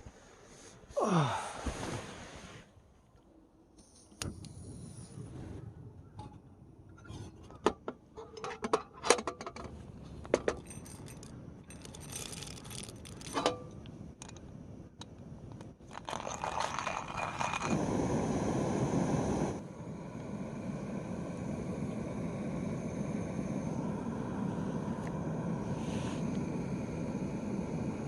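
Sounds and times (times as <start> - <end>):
steady hissing noise: 0.0 - 5.9, 8.4 - 28.0
small hard objects clinking: 10.4 - 14.4, 15.8 - 17.8.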